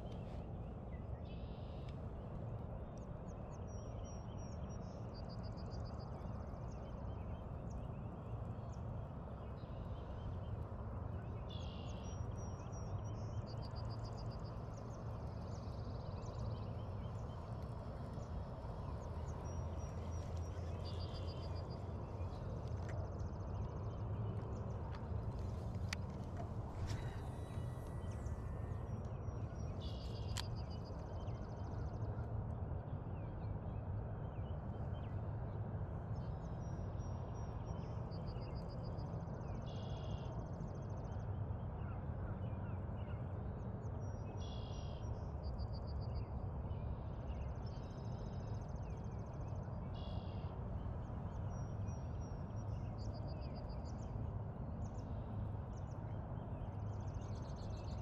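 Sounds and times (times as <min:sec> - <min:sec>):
low outdoor rumble: 0:00.0 - 0:58.0.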